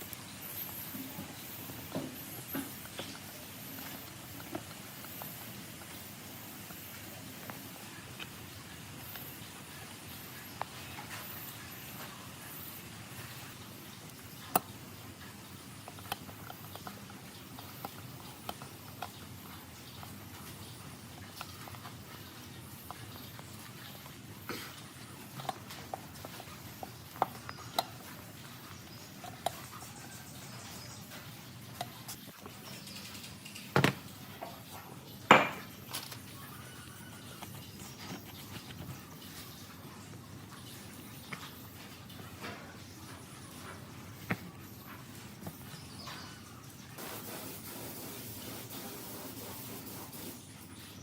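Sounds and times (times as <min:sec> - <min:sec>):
sharp metal knocks: 0:35.3 - 0:35.7.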